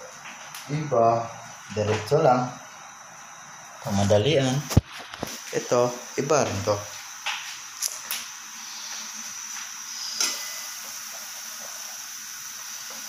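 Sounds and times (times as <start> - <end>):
chicken sizzling in hot oil: 5.3 - 13.0.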